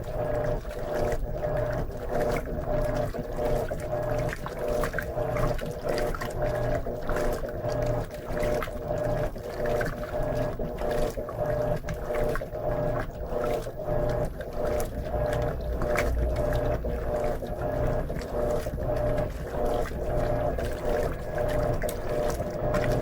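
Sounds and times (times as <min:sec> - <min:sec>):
agitator churning clothes in water: 0:00.0 - 0:23.0
washing machine motor humming: 0:00.0 - 0:23.0.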